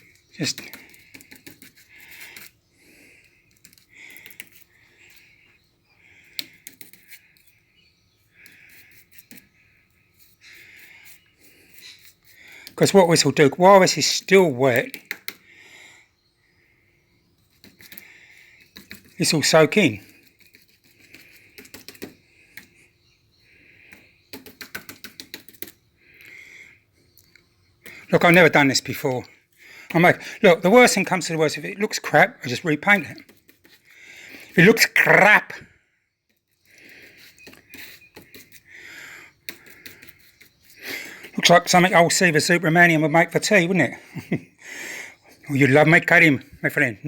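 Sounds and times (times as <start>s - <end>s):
paintbrush scrubbing plaster: 0.0s - 15.4s, 17.4s - 26.4s, 27.8s - 35.6s, 36.3s - 44.4s
paintbrush tapping on plaster: 14.8s - 15.4s, 18.6s - 22.8s, 23.9s - 25.8s.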